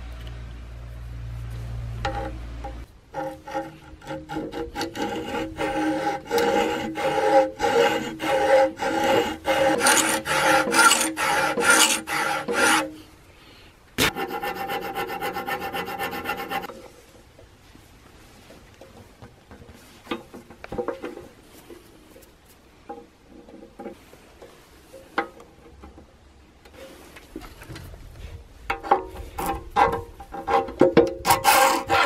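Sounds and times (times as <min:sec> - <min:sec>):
file rasping strokes: 0:03.1 - 0:13.0, 0:14.0 - 0:16.8, 0:29.1 - 0:32.0.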